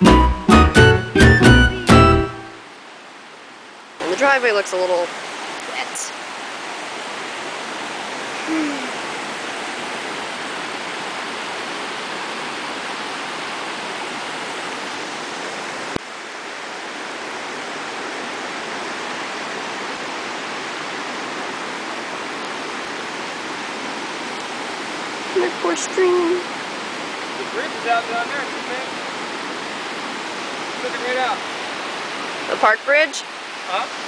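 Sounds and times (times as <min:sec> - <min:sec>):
rushing floodwater: 0:00.0 - 0:34.0.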